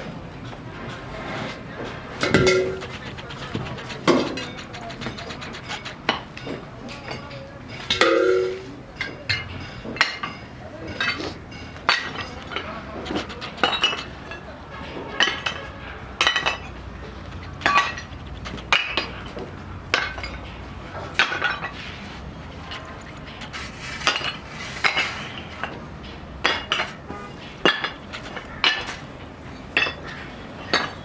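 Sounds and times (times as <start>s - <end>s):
metal-on-metal clinking strikes: 2.2s - 3.1s, 4.1s - 14.1s.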